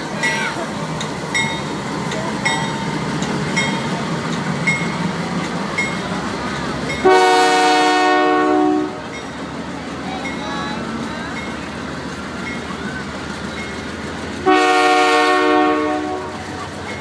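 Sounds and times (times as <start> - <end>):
train rumbling along track: 0.0 - 17.0
locomotive horn blast: 7.0 - 9.1, 14.4 - 16.5.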